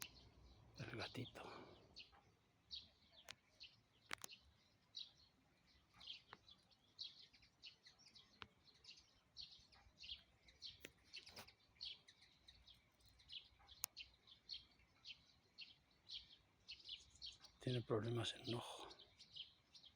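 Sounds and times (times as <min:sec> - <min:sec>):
small birds chirping: 0:00.0 - 0:19.9
sharp clicks: 0:04.1 - 0:04.4.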